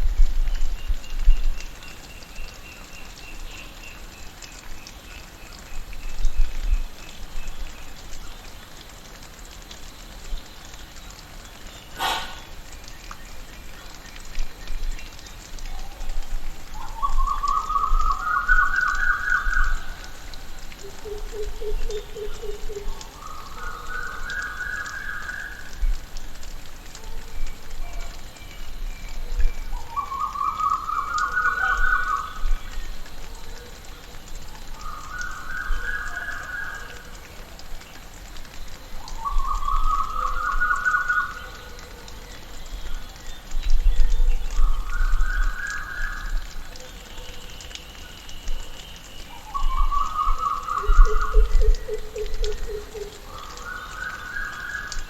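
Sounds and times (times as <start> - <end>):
steady background hiss: 0.0 - 55.0
faint scattered ticks: 0.3 - 55.0
bird calling in short notes: 11.9 - 12.6.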